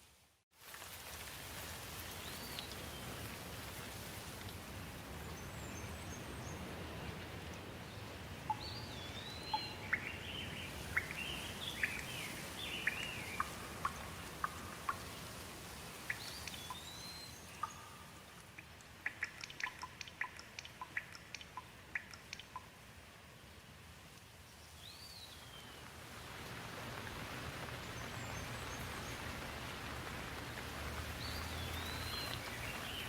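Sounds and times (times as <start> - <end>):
steady rain falling: 0.0 - 33.0
sharp dripping ticks: 8.4 - 22.8.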